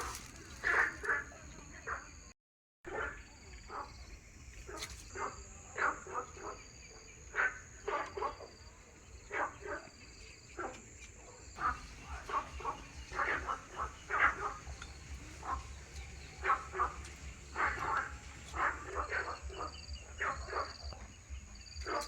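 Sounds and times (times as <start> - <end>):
high insect trill: 2.9 - 22.0
short animal calls: 11.6 - 20.7.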